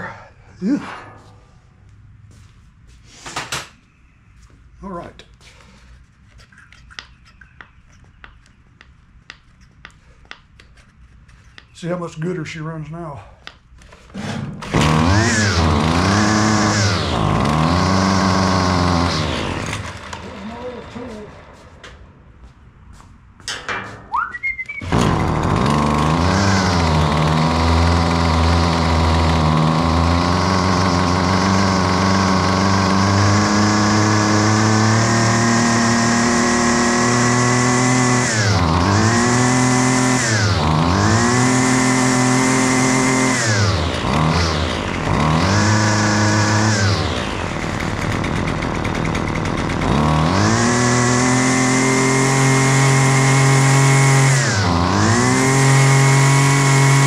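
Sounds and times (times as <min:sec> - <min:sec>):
string trimmer engine revving: 0:14.2 - 0:21.6, 0:24.8 - 0:57.0.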